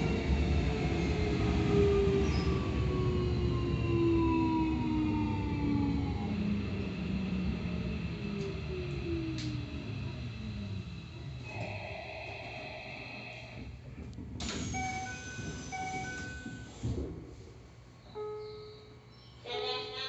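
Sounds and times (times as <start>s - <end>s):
train doors rush of air: 13.5s - 17.6s.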